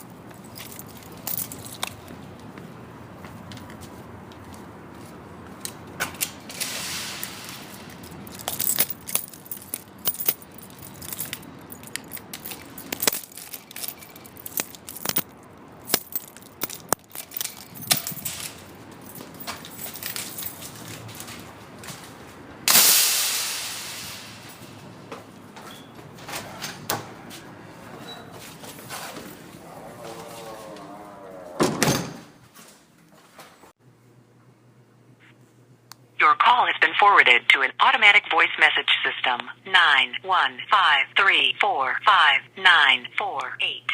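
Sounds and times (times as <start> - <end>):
keys jangling: 0.0 - 2.2, 6.5 - 21.4.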